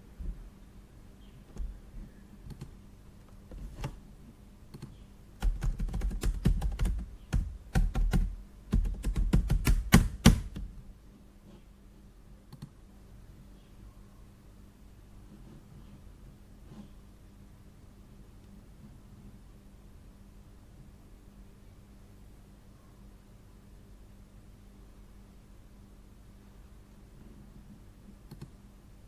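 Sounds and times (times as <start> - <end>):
typing on computer keyboard: 4.7 - 10.7.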